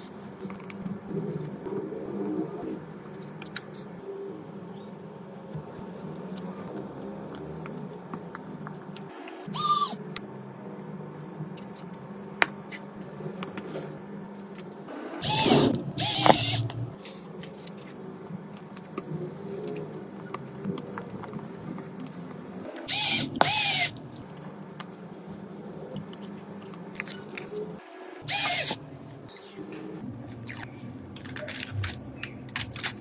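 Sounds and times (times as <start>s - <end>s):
power tool motor whirring: 9.5s - 10.0s, 15.2s - 16.8s, 22.9s - 24.0s, 28.2s - 28.8s.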